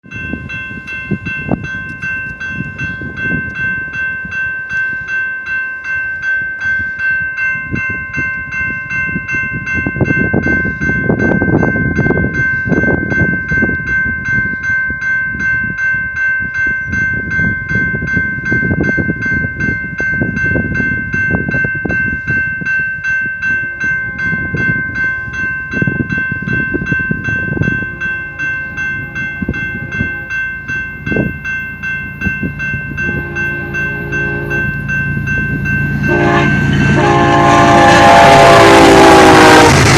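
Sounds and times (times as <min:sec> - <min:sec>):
train wheels rumbling on rails: 0:00.0 - 0:39.9
rapid repeating ringing tone: 0:19.9 - 0:38.4.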